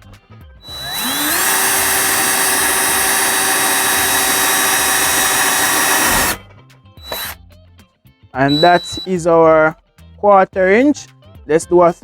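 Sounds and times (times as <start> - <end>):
drill bit cutting plastic: 0.6 - 6.4, 7.0 - 7.4, 8.4 - 9.1
power drill whining: 0.6 - 6.4, 7.0 - 7.4, 8.4 - 9.1.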